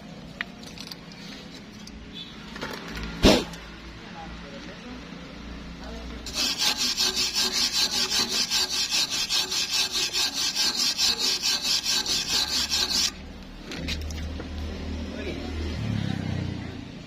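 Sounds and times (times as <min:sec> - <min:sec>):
hand tool scraping metal: 0:06.3 - 0:13.2.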